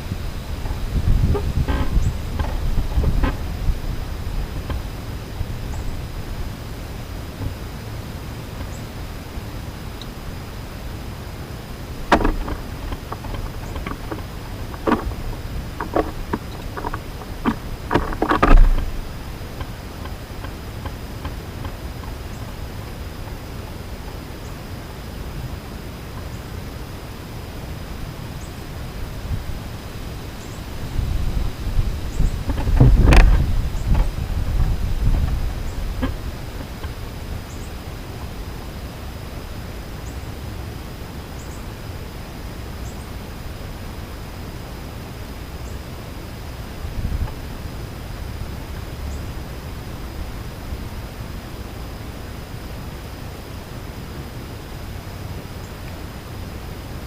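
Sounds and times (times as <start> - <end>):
small birds chirping: 0.0 - 25.4, 28.3 - 29.2, 29.8 - 40.4, 41.1 - 41.9, 42.7 - 43.2
low outdoor rumble: 0.0 - 57.0
dull thump: 12.1 - 15.2, 15.8 - 19.0.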